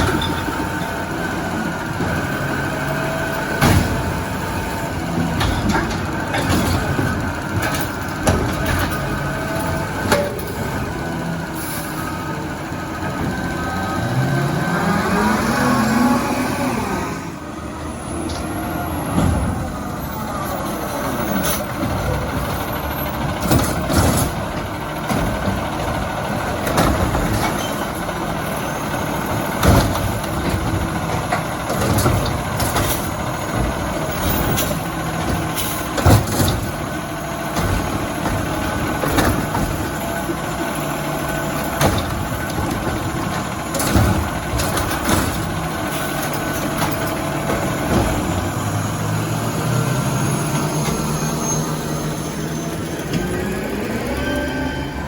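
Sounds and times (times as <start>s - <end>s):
garbage truck engine running: 0.0s - 55.0s
sharp metal bangs and clanks: 5.1s - 10.9s.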